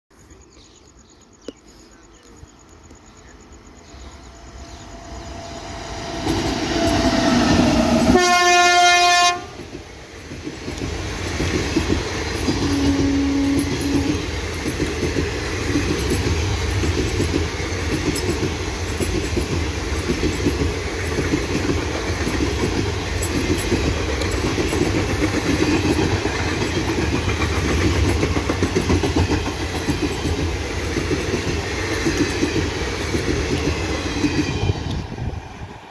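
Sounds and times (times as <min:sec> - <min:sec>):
train rumbling past: 0:03.1 - 0:35.9
locomotive horn: 0:06.9 - 0:09.6, 0:12.6 - 0:14.2
wheels clattering over rail joints: 0:09.6 - 0:34.9.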